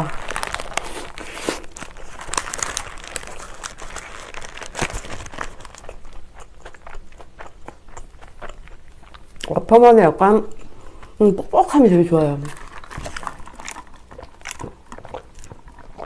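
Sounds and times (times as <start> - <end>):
paper wrapper crinkling: 0.0 - 6.2, 12.4 - 16.0
person chewing burger: 0.0 - 9.5, 12.5 - 16.0.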